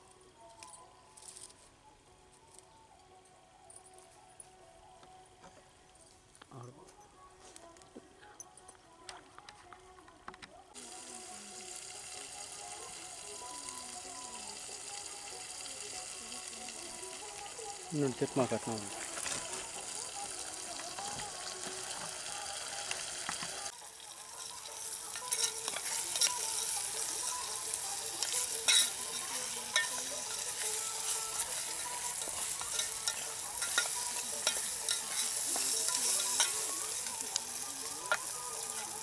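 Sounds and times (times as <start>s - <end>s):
chicken sizzling in a pot: 10.7s - 39.0s.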